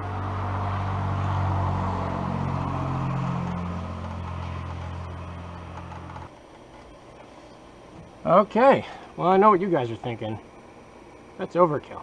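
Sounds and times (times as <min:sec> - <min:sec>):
small engine running: 0:00.0 - 0:06.4.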